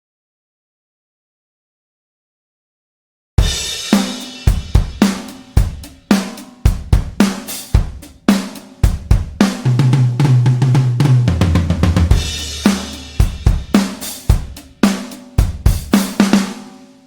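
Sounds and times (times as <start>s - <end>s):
low pitched drum fill: 3.4s - 16.7s
drum kit playing a groove: 3.4s - 17.0s.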